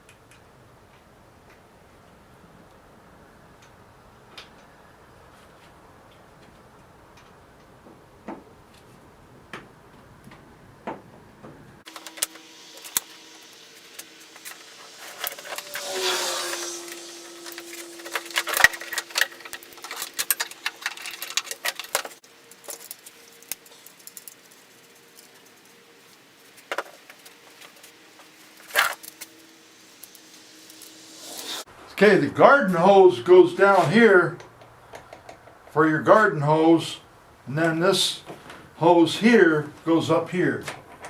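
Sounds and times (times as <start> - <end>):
tools and small parts rattling: 11.9 - 29.4
scraping: 11.9 - 31.7.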